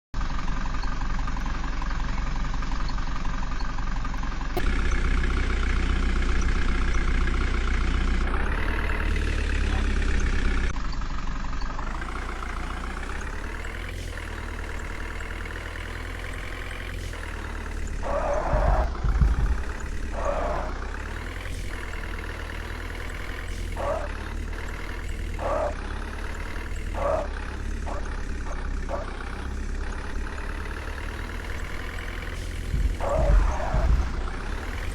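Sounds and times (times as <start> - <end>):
diesel engine revving: 0.2 - 34.9
heavy low thud: 18.4 - 20.8, 32.7 - 34.9.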